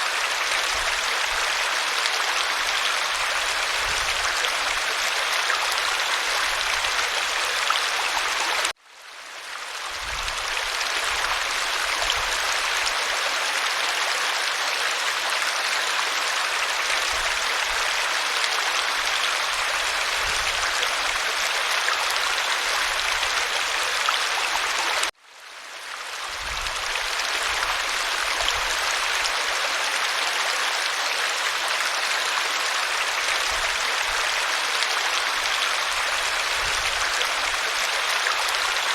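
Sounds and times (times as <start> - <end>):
waterfall rushing: 0.0 - 8.8, 26.7 - 38.9.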